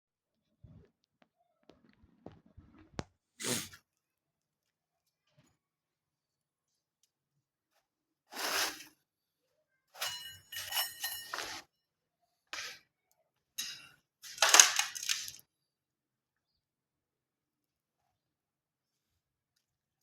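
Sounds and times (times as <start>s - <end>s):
metallic scraping and clinking: 10.0s - 11.6s, 13.6s - 15.4s.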